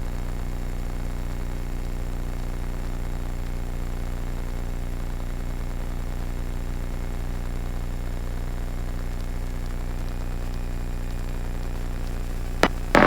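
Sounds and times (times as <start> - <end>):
sharp click: 12.6 - 13.0.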